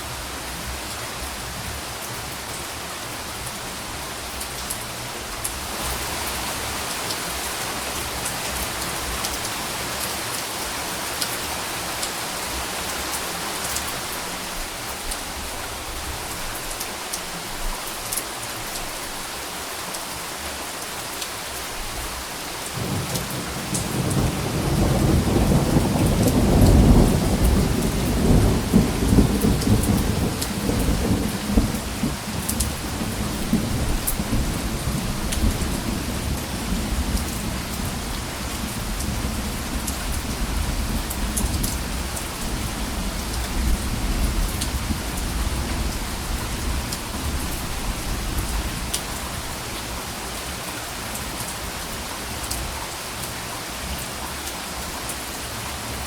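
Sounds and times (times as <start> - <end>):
steady rain: 0.0 - 56.0
thunder rolling: 22.8 - 37.1.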